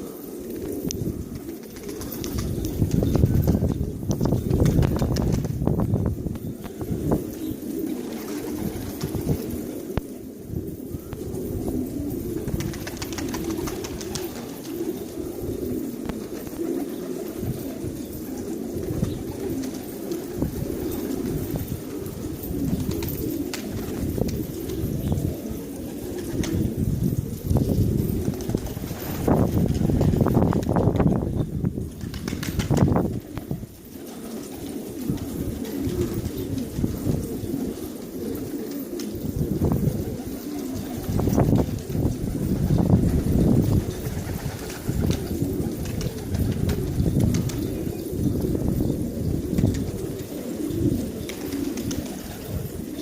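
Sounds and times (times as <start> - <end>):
pigeons cooing: 0.0 - 53.0.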